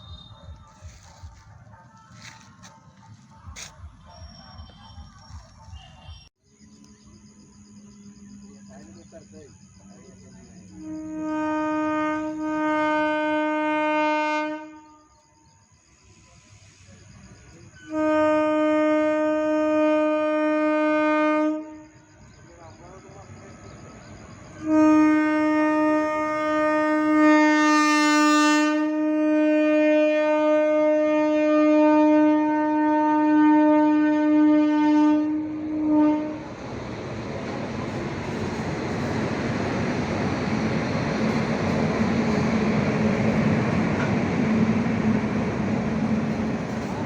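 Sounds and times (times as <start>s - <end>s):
train rumbling past: 0.0s - 47.0s
train horn blast: 10.6s - 15.2s, 17.8s - 22.1s, 24.5s - 36.6s.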